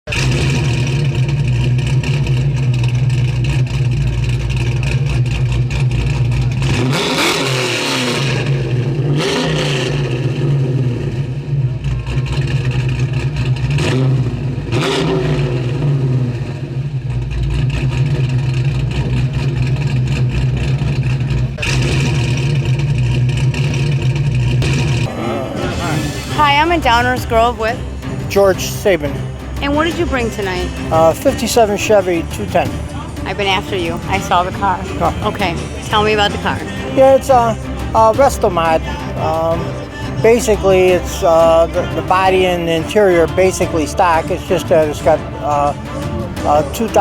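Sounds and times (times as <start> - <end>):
car engine idling and revving: 0.0 - 47.0.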